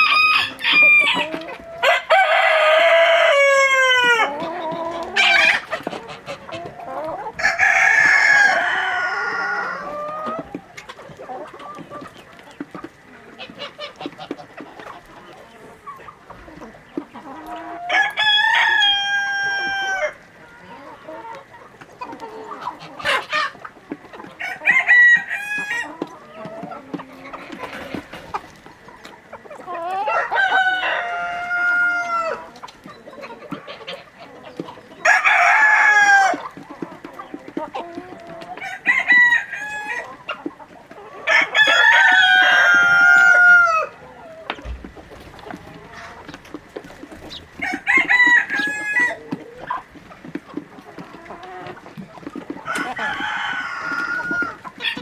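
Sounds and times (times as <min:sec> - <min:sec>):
rooster crowing: 0:00.0 - 0:04.3, 0:07.4 - 0:10.0, 0:17.9 - 0:20.2, 0:30.0 - 0:32.4, 0:41.2 - 0:44.0, 0:47.3 - 0:49.4, 0:52.6 - 0:55.0
chicken clucking: 0:00.0 - 0:55.0.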